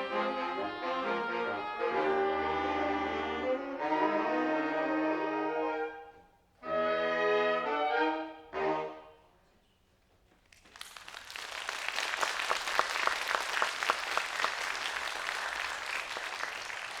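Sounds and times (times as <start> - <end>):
brass ensemble chord: 0.0 - 9.3
audience applause: 10.6 - 17.0.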